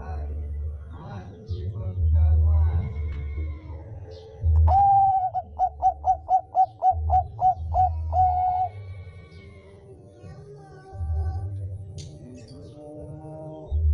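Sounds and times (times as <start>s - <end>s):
dove cooing: 4.1s - 10.4s.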